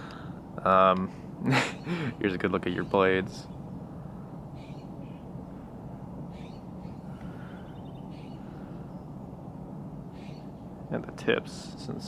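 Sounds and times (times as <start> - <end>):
birds calling faintly: 0.0 - 12.0
low background rumble: 0.0 - 12.0
rapid bird chirps: 4.5 - 5.3, 6.3 - 9.4, 10.1 - 10.8.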